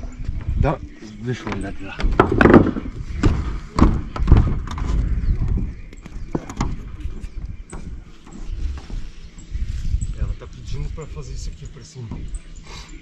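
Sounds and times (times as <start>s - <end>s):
dull thumps and knocks: 1.4s - 6.9s.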